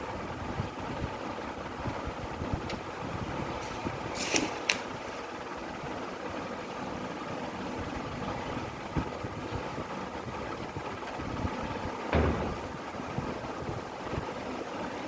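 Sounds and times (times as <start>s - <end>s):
steady mechanical hum: 0.0s - 15.0s
faint knock: 12.1s - 13.0s.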